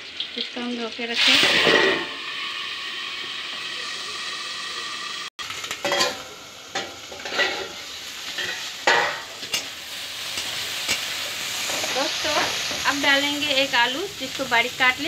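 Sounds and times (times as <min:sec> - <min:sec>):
slices sizzling in hot oil: 0:00.0 - 0:15.0
lid and spatula clinking on pan: 0:05.8 - 0:06.2, 0:06.8 - 0:07.8, 0:08.4 - 0:09.7.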